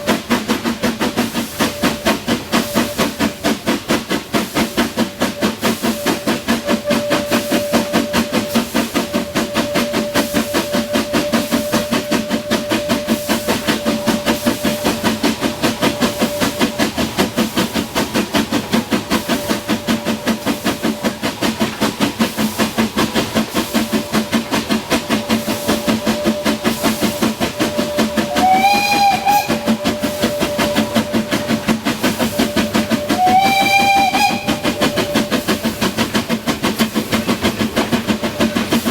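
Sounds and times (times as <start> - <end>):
steam locomotive exhaust beating: 0.0 - 38.9
steam whistle blasts: 25.4 - 35.4.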